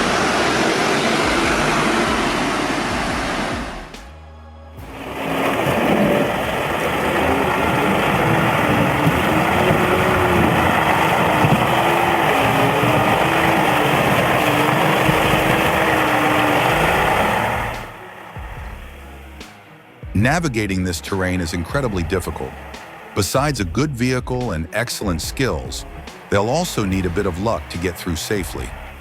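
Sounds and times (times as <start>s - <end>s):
heavy vehicle engine whining: 0.0s - 29.0s.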